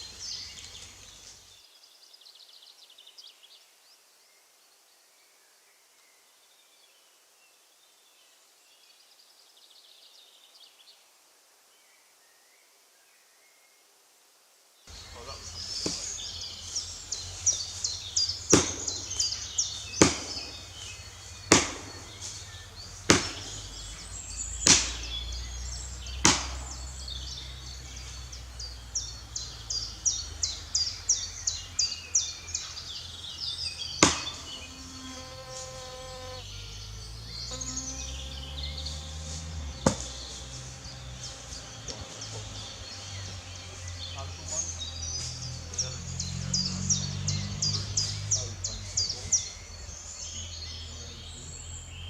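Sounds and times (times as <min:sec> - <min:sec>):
chopping strikes into wood: 0:15.8 - 0:16.2, 0:18.5 - 0:20.6, 0:21.5 - 0:22.4, 0:23.1 - 0:23.7, 0:24.6 - 0:25.1, 0:26.2 - 0:26.8, 0:34.0 - 0:34.6, 0:39.8 - 0:40.2.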